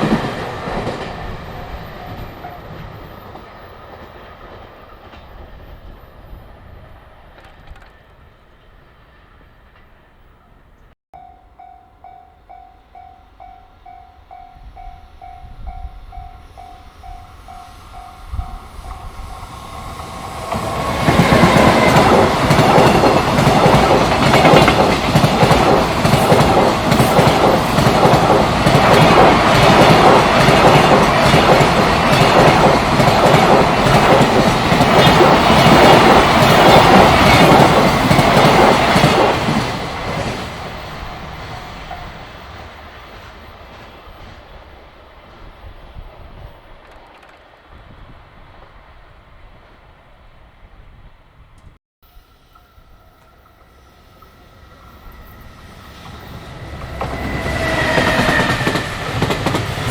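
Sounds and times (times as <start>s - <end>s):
freight train passing: 0.0s - 59.9s
wheels clattering over rail joints: 7.1s - 8.8s, 46.6s - 48.0s.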